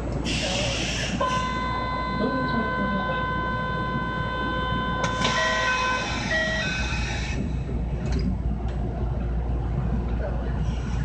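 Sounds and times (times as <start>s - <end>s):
train rumble: 0.0s - 11.0s
hiss: 0.3s - 1.2s
short beeping tones: 1.2s - 7.3s.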